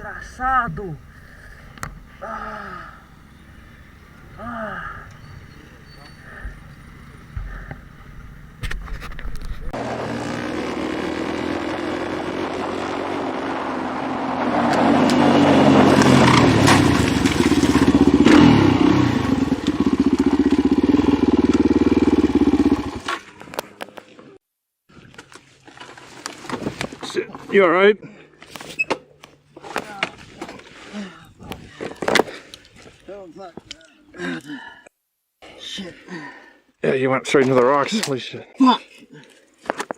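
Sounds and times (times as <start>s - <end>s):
motorcycle engine revving: 9.6s - 23.3s.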